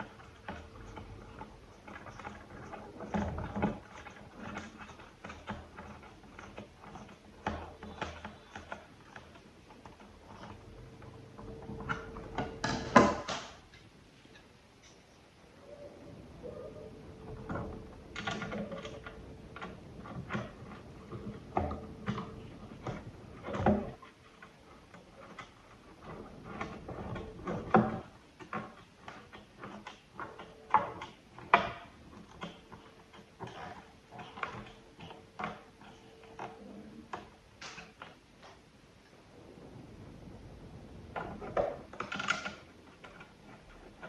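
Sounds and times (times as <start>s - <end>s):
faint steady tone: 13.8s - 19.5s
clicks and knocks of small parts: 41.1s - 44.0s.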